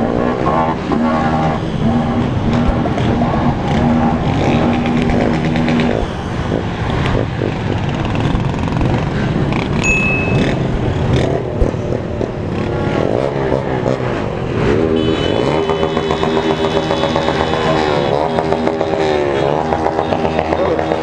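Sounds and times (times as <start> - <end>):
motorcycle engines revving: 0.0 - 21.0
high-pitched beep: 9.8 - 10.7.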